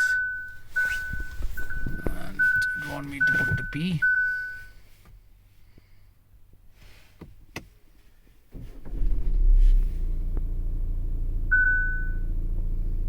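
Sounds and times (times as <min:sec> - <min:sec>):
short beep: 0:00.0 - 0:04.7, 0:11.5 - 0:12.3
car engine starting and idling: 0:00.0 - 0:06.6, 0:07.2 - 0:13.0.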